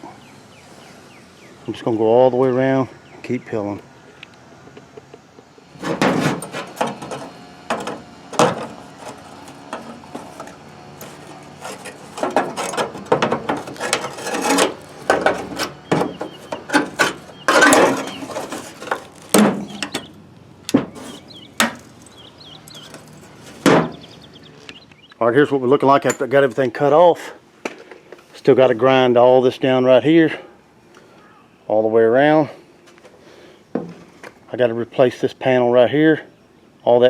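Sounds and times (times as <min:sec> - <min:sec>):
metal clanks: 0:05.7 - 0:20.1, 0:20.7 - 0:24.1
metal scraping: 0:05.7 - 0:24.2.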